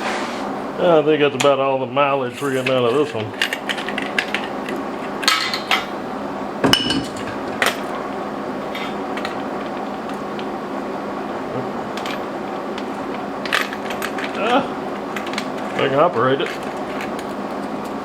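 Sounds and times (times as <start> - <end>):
steady hum: 0.0 - 18.0
steel tools clanking: 2.3 - 6.0, 11.9 - 17.4.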